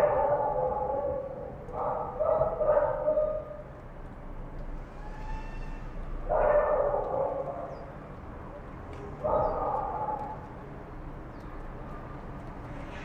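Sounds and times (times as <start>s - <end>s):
dogs barking and howling: 0.0s - 3.6s, 6.3s - 7.8s, 9.2s - 10.5s.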